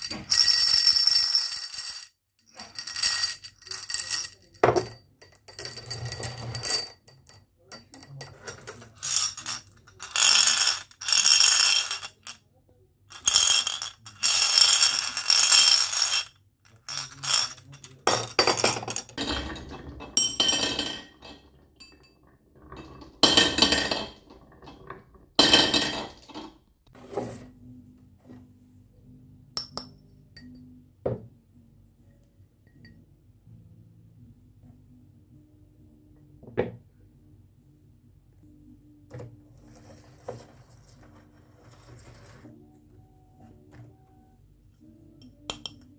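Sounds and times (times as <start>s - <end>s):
marbles clattering down a track: 0.1s - 4.9s, 8.6s - 12.4s, 13.1s - 19.2s.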